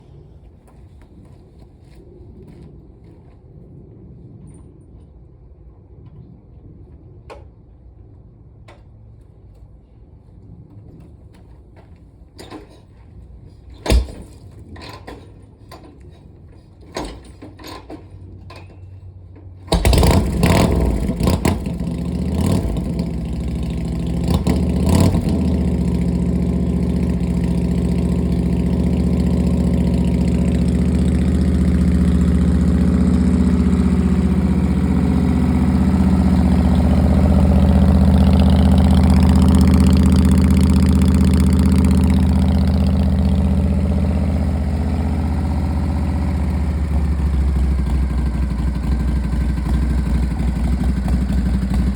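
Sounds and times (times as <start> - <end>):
engine clicks and knocks: 13.7 - 46.2
motorcycle engine revving and idling: 19.6 - 51.9.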